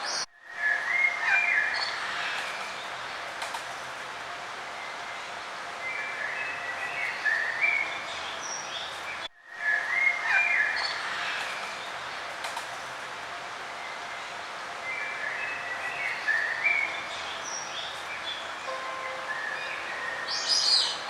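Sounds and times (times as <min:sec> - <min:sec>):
outdoor ambience hiss: 0:00.0 - 0:21.0
songbirds chirping and singing: 0:14.9 - 0:21.0.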